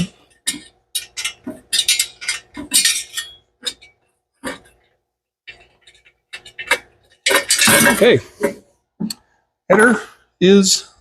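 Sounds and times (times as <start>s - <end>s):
metal clinking against metal: 0.0s - 4.0s, 5.5s - 8.2s.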